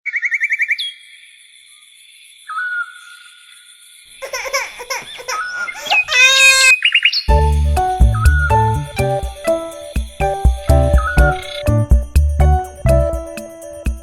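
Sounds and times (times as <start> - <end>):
baby giggling and laughing: 4.2 - 6.8.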